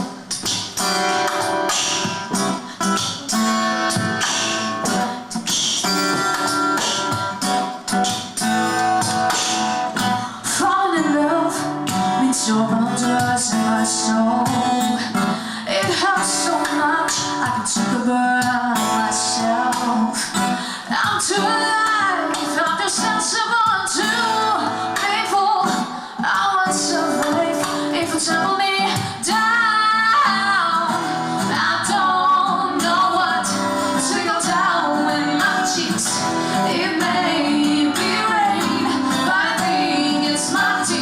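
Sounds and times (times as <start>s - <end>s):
acoustic guitar strumming: 0.0s - 41.0s
woman singing: 10.0s - 41.0s.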